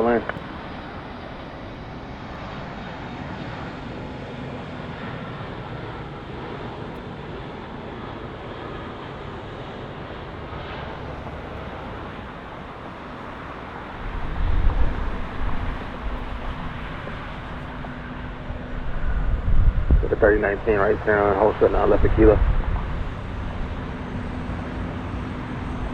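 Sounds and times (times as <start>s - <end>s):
jet engines: 0.0s - 25.9s
loud low rumble: 14.0s - 25.9s.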